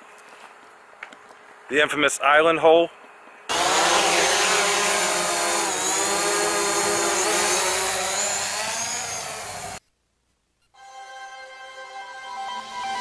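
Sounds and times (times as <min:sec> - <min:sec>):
drone propellers buzzing: 0:03.5 - 0:09.8.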